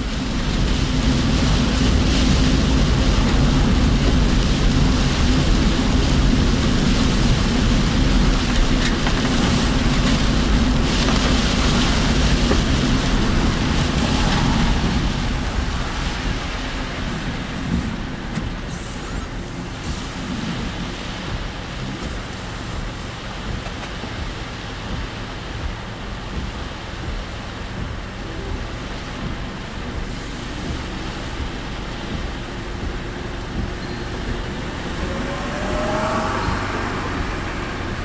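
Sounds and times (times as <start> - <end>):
car engine: 0.0 - 38.0
rain and wind: 0.0 - 38.0
tyres on wet road: 0.0 - 38.0.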